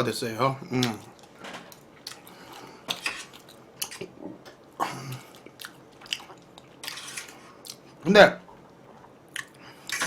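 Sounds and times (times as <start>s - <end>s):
small wet smacks and clicks: 0.6s - 2.4s, 3.4s - 6.7s, 7.6s - 7.8s, 9.0s - 10.0s
person chewing food: 0.6s - 10.0s.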